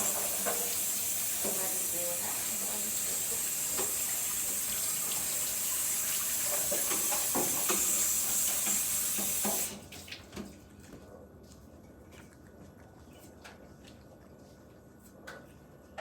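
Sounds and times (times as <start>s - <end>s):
tap running into sink: 0.0s - 10.5s
dishes clattering: 6.4s - 9.6s.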